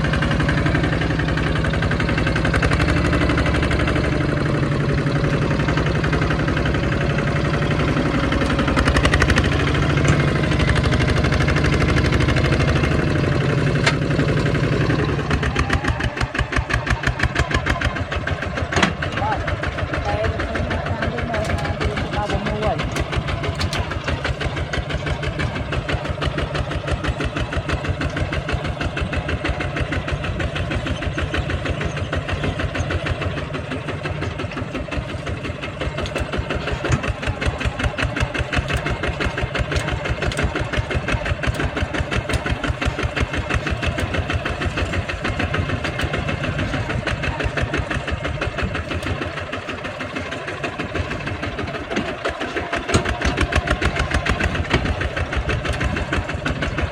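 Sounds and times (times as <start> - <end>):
tractor diesel engine chugging: 0.0 - 56.9.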